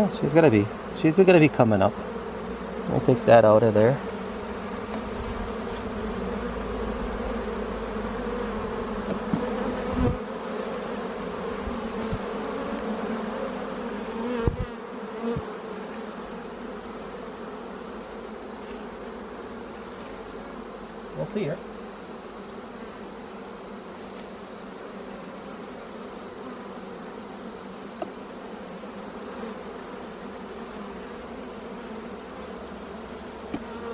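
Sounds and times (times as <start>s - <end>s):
bees buzzing: 0.0s - 33.9s
knocks on hive: 9.0s - 10.2s, 27.9s - 28.2s, 33.5s - 33.9s.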